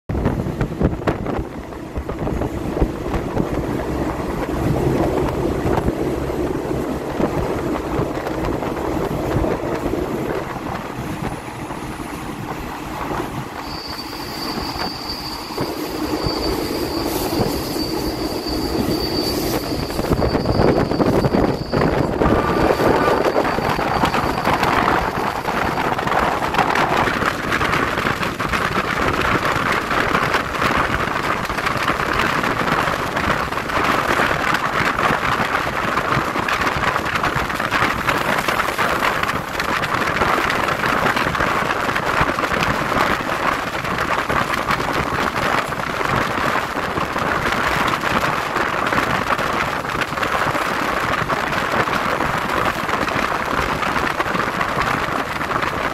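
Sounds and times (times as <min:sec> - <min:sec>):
train wind and wheels rushing: 0:00.0 - 0:55.9
high wheel squeal: 0:13.2 - 0:27.7.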